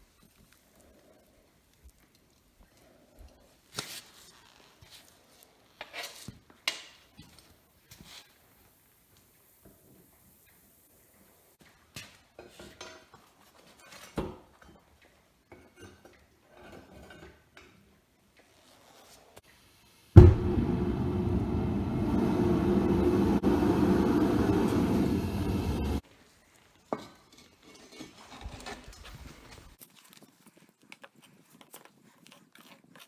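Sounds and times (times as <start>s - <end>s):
loud steady rushing noise: 20.2s - 26.0s.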